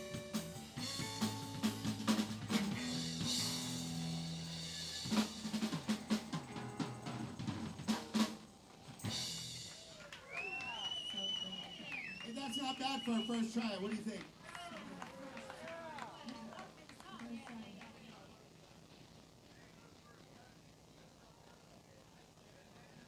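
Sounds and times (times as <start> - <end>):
drum fills and hits: 0.0 - 10.0
live band playing: 0.0 - 10.0.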